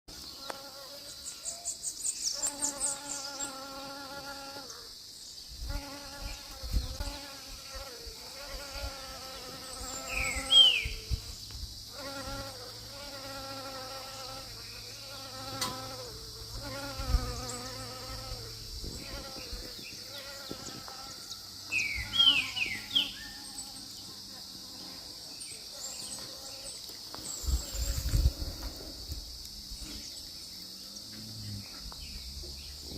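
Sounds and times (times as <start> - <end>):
bird chirping: 0.1 - 5.5, 9.4 - 11.5, 19.2 - 24.1
high insect hiss: 0.1 - 32.9
bee buzzing: 0.2 - 1.3, 2.3 - 32.9.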